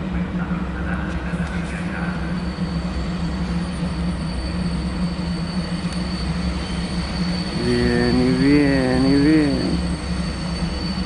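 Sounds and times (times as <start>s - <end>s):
trains rumbling: 0.0s - 11.0s
electric locomotive idling: 1.8s - 11.0s
steady electric hum: 7.6s - 10.0s
wavering pitched sound: 7.6s - 10.0s.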